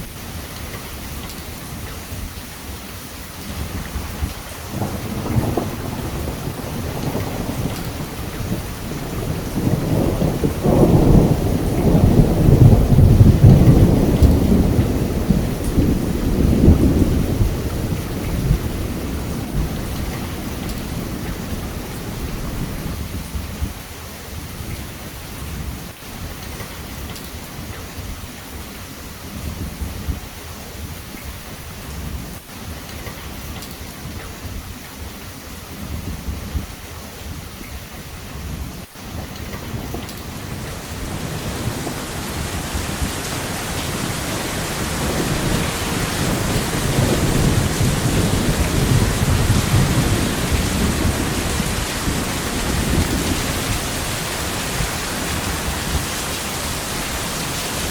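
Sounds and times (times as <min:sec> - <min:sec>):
heavy rain: 0:00.0 - 0:57.9
rolling thunder: 0:03.4 - 0:23.8, 0:38.3 - 0:57.9.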